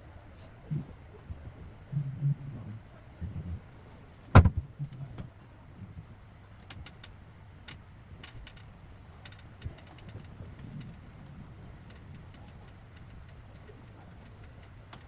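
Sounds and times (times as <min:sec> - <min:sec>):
sharp knock: 0:04.4 - 0:04.6.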